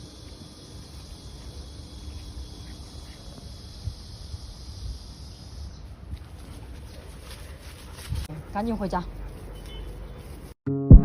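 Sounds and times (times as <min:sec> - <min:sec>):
insects chirring: 0:00.0 - 0:07.9.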